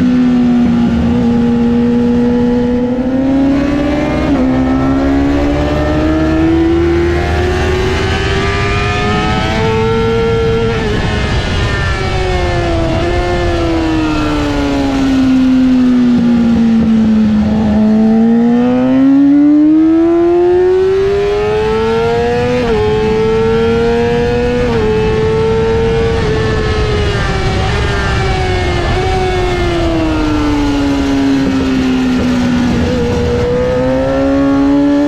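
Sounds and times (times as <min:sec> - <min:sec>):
steady rushing noise: 0:00.0 - 0:18.3, 0:20.7 - 0:35.0
motorcycle engine revving: 0:00.0 - 0:35.0.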